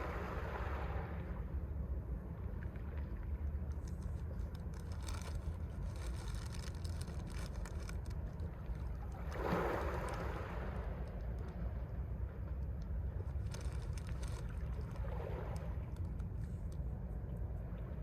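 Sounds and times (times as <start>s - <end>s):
steady low rumble: 0.0s - 18.0s
sea waves washing onto shore: 9.2s - 11.5s.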